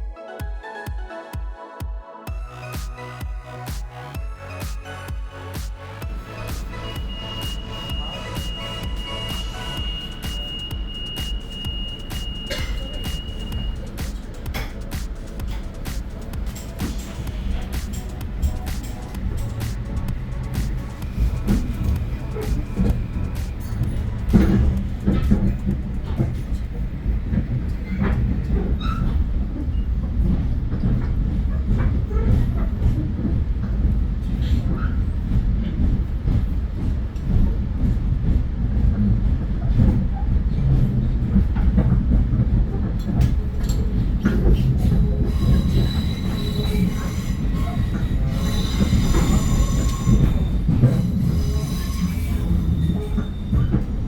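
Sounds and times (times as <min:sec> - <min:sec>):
train rumbling: 0:02.3 - 0:54.0
train wheels squealing: 0:06.0 - 0:14.9, 0:27.8 - 0:33.0, 0:43.6 - 0:54.0
wheels clicking over track: 0:06.0 - 0:51.4.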